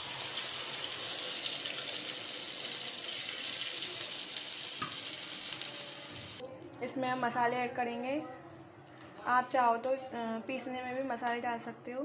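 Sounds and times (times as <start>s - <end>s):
paste sizzling in hot oil: 0.0s - 6.4s.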